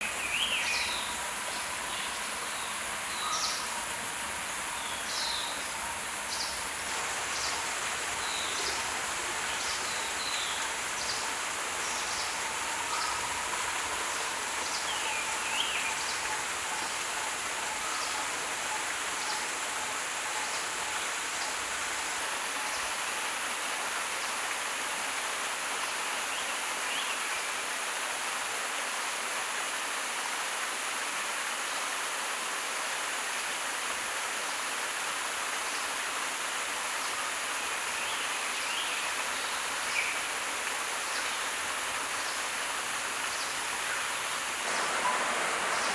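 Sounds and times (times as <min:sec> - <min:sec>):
steady high hiss: 0:00.0 - 0:45.9.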